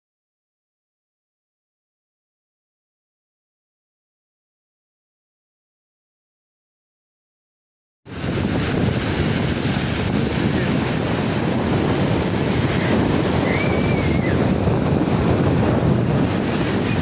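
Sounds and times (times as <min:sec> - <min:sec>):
wind buffeting microphone: 0:08.1 - 0:17.0.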